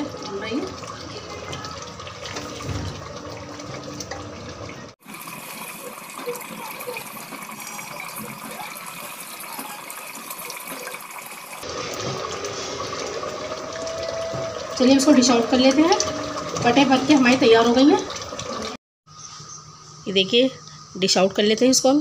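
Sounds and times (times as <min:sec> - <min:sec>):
food sizzling in a pot: 0:05.0 - 0:18.0.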